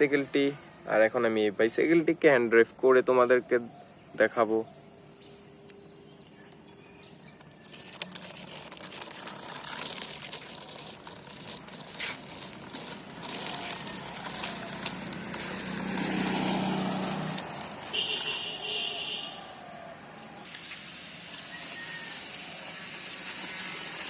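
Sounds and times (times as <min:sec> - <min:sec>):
toy bicycle rolling and scraping: 0:07.4 - 0:18.5, 0:20.4 - 0:24.0.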